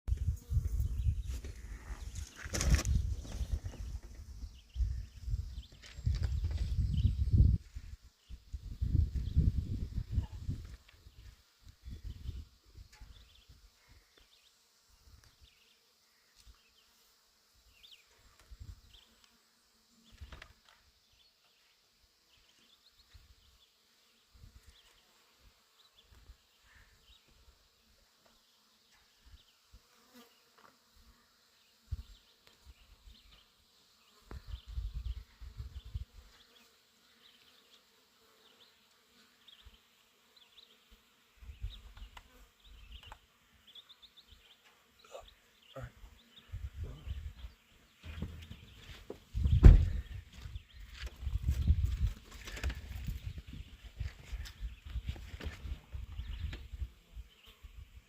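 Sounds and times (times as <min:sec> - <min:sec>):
insects buzzing: 0:00.1 - 0:58.0
low microphone rumbles: 0:48.1 - 0:52.2.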